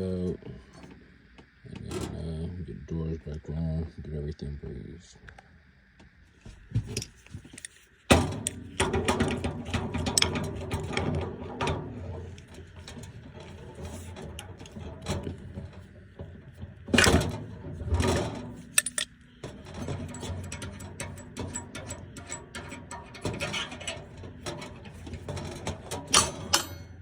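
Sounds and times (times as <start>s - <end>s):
hand tools clicking and clattering: 6.9s - 27.0s.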